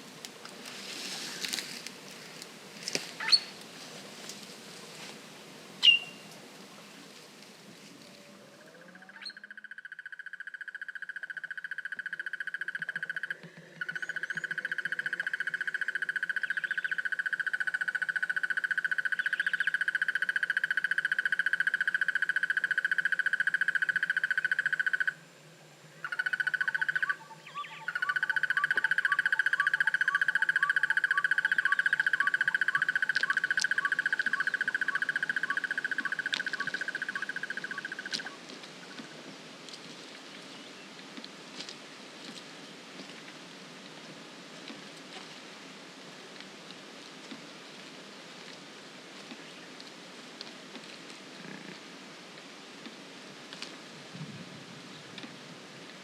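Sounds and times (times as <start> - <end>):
slow ticking frog calls: 8.6 - 39.2
frog high-pitched trill: 26.0 - 38.4.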